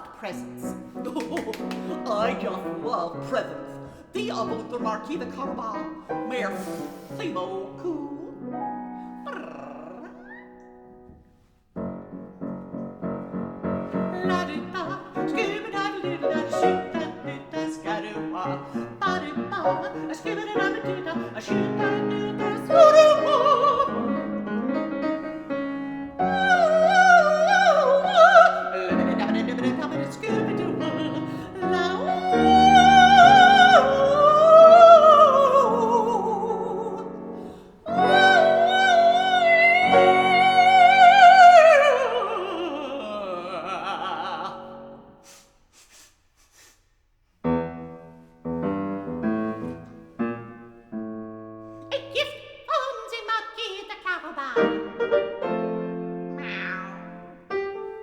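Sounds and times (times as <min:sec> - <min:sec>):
woman singing opera: 0:00.0 - 0:10.6, 0:13.8 - 0:45.2, 0:51.9 - 0:55.2
piano accompaniment: 0:00.0 - 0:45.2, 0:47.4 - 0:52.5, 0:54.5 - 0:58.0.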